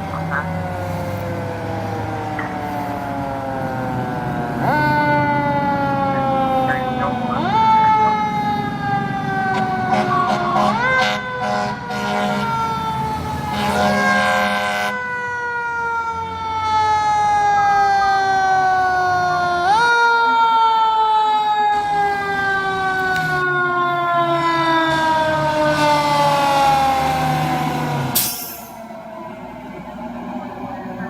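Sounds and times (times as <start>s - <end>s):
mechanical siren wailing: 0.0s - 31.0s
air horn blasts: 9.5s - 12.7s, 13.5s - 15.0s.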